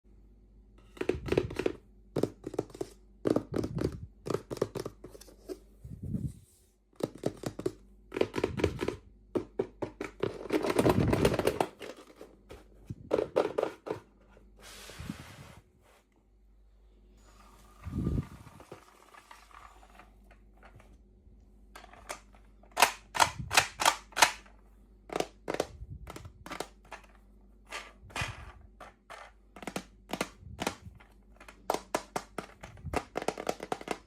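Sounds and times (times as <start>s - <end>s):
soft steady rustle: 5.0s - 7.0s.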